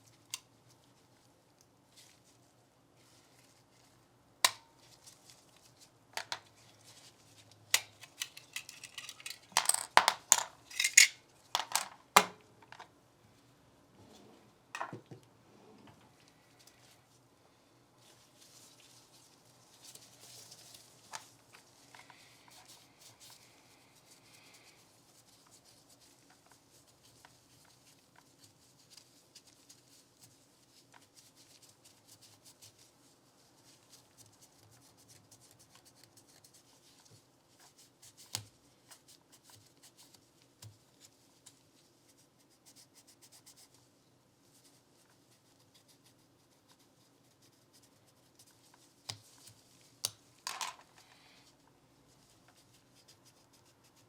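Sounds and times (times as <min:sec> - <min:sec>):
light rubbing and handling: 0:00.0 - 0:17.3.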